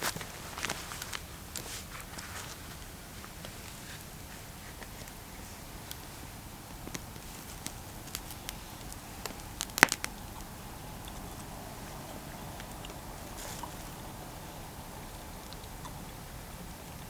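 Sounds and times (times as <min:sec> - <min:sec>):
low steady fire hiss: 0:00.0 - 0:17.0
campfire crackling and popping: 0:04.7 - 0:14.3.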